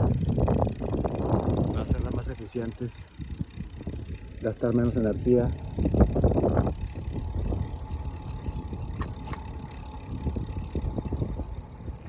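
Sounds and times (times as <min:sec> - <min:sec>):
wind and road noise rumble: 0:00.0 - 0:12.0
faint steady hum: 0:03.0 - 0:12.0.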